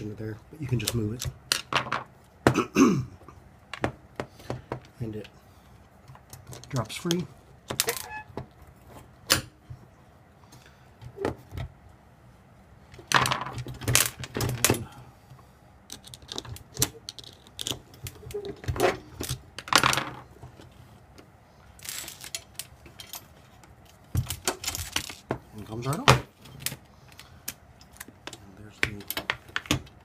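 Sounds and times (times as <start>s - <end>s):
metal parts clinking and rattling: 15.9s - 20.2s, 21.8s - 28.4s.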